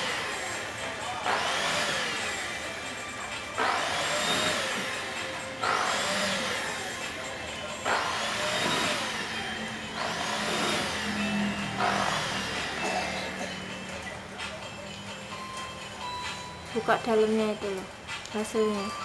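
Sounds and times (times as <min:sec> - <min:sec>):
vacuum motor hum: 0:00.0 - 0:14.1.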